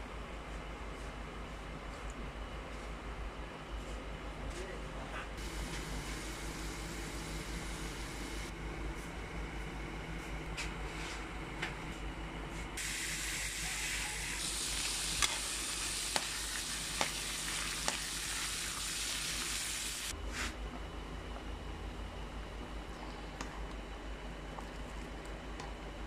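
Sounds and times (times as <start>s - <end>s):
hot oil sizzling: 12.8s - 20.1s.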